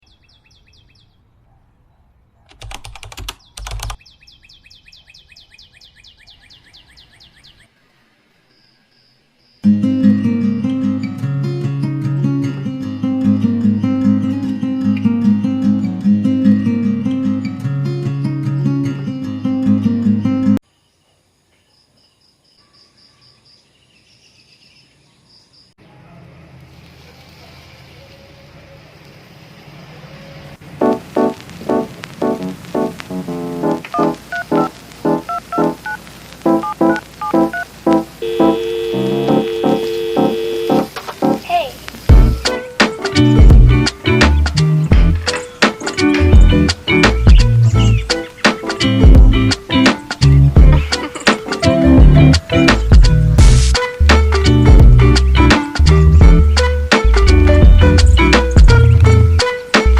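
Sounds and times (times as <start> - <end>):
bird chirping: 0.0 - 2.5, 3.2 - 9.7, 20.8 - 25.7, 44.0 - 49.4
flurries of quick clicks: 2.5 - 4.0
insect chirping: 7.7 - 9.7, 20.6 - 25.8.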